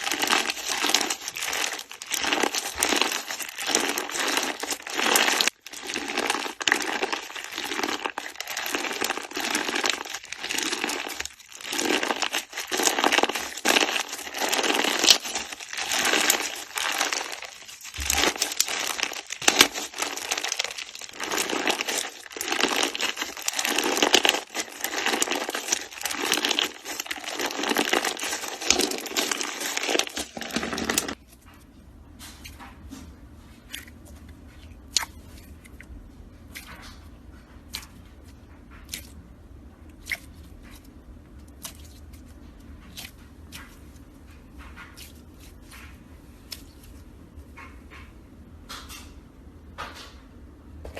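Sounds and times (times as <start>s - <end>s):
hands squishing slime: 0.0s - 31.2s.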